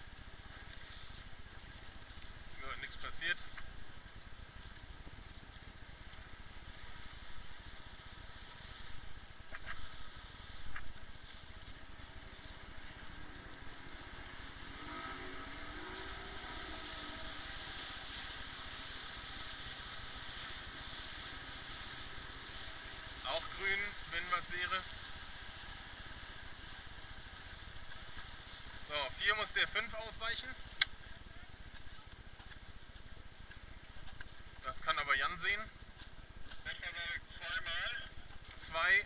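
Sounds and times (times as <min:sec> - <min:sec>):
motorboat engine running: 0:00.0 - 0:35.0
wind and water rushing: 0:12.0 - 0:23.3.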